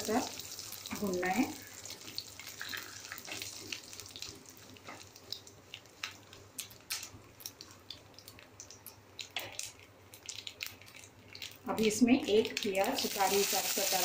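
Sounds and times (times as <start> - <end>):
seeds frying in oil: 0.0 - 14.0.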